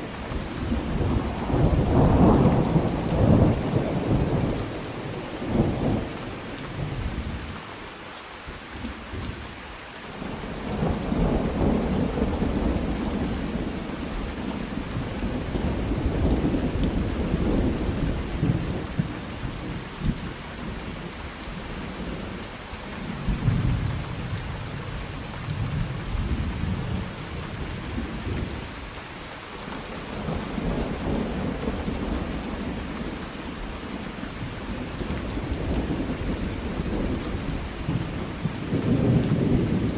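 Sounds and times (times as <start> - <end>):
steady rain falling: 0.0 - 39.9
rolling thunder: 34.6 - 39.9.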